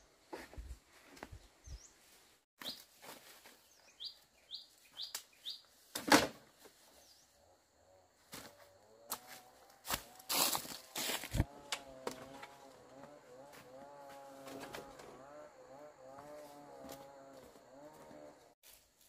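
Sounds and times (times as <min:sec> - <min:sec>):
small birds chirping: 0:01.2 - 0:02.9, 0:03.5 - 0:05.8.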